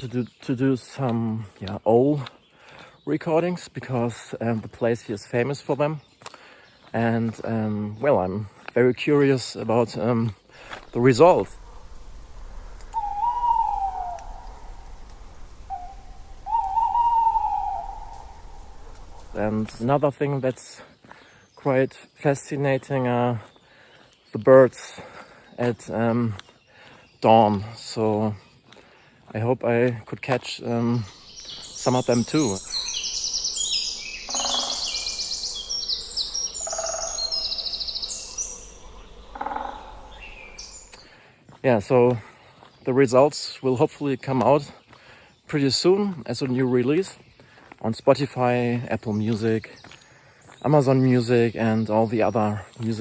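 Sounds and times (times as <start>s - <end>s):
songbirds trilling and warbling: 0.0s - 53.0s
low pulsed bird call: 10.7s - 19.9s, 31.1s - 41.1s
owl hooting: 10.9s - 19.8s, 31.2s - 41.0s.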